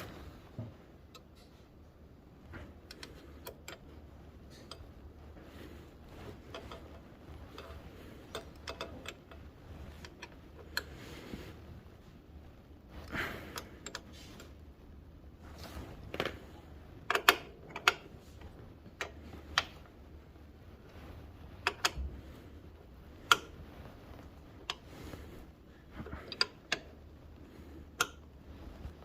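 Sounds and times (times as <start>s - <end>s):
light metallic clicks and taps: 0.1s - 1.8s, 2.4s - 5.0s, 17.0s - 19.9s, 20.9s - 22.1s, 27.8s - 29.0s.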